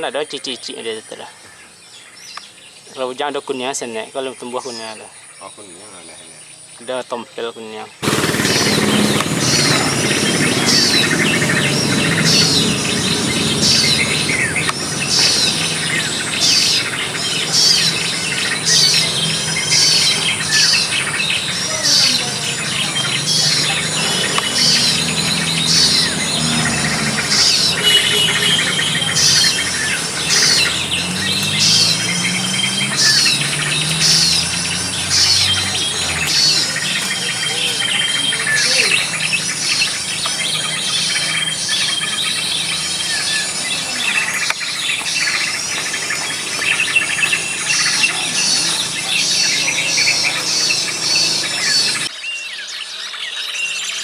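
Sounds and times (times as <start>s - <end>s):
high-pitched insect drone: 8.0s - 52.1s
small bird chirping: 8.0s - 52.1s.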